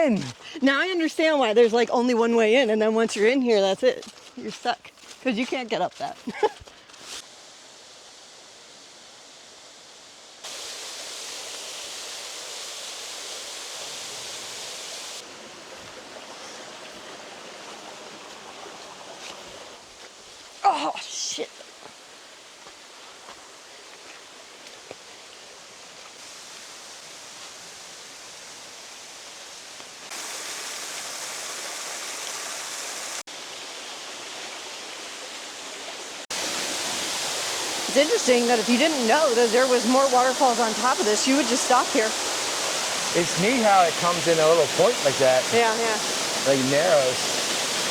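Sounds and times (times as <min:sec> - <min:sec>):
waterfall rushing: 0:36.2 - 0:47.9.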